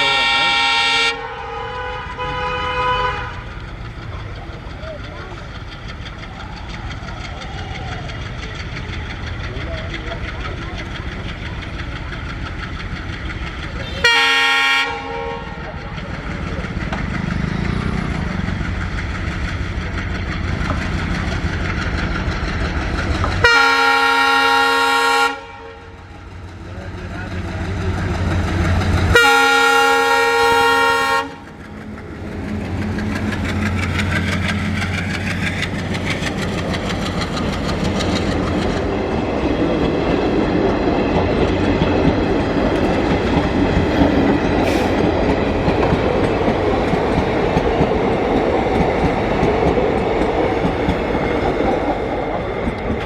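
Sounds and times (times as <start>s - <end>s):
locomotive horn: 0.0s - 3.6s, 13.8s - 15.6s, 23.4s - 26.0s, 29.1s - 31.5s
diesel engine hum: 0.0s - 53.0s
train rumble: 0.0s - 53.0s
wheels clacking over rail joints: 3.2s - 25.1s, 25.8s - 53.0s.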